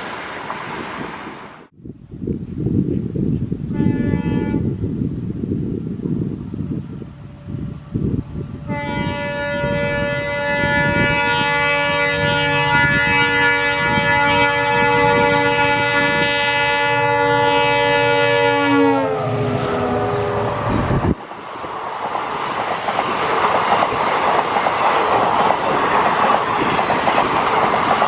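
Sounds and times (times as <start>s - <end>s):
train rumble: 3.6s - 28.0s
locomotive horn blast: 3.7s - 4.8s, 8.6s - 21.0s.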